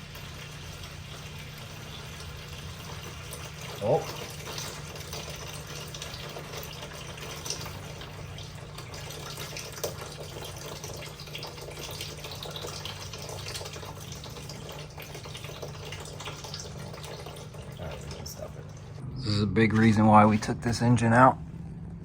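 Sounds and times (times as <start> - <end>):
oil trickling into a pan: 0.0 - 19.0
steady low hum: 16.5 - 22.0.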